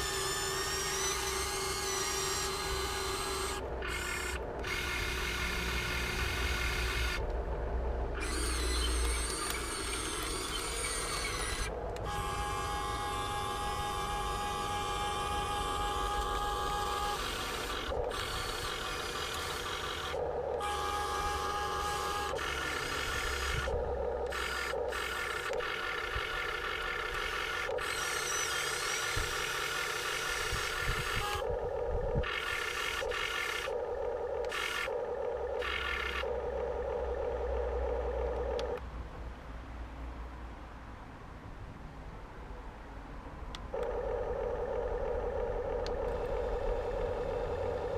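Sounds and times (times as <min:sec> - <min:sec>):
electric gear motors whining: 0:00.0 - 0:38.8, 0:43.7 - 0:47.9.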